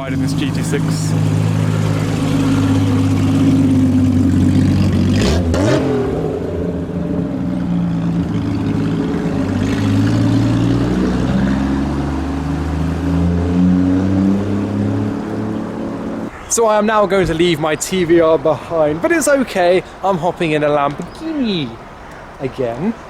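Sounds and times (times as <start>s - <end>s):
car engine idling and revving: 0.0s - 16.4s.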